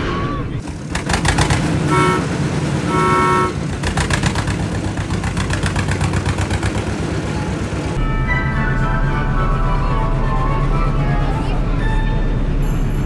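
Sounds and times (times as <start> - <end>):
tractor engine chugging: 0.0 - 13.0
horn toot: 1.8 - 3.7
background music: 7.8 - 13.0.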